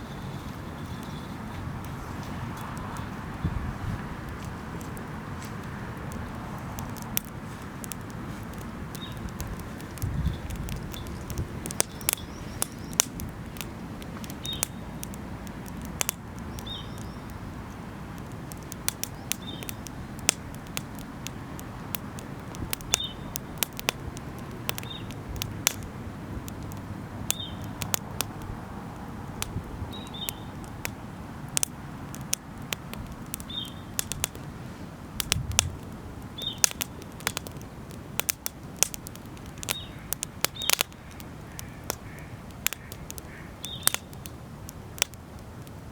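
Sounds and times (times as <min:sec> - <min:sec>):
bird chirping: 0:00.0 - 0:01.6, 0:10.2 - 0:13.6, 0:16.5 - 0:17.8, 0:27.3 - 0:27.7, 0:29.9 - 0:30.5, 0:33.5 - 0:33.9, 0:36.4 - 0:36.6, 0:39.7 - 0:42.3, 0:42.9 - 0:44.1
campfire crackling and popping: 0:00.0 - 0:45.9.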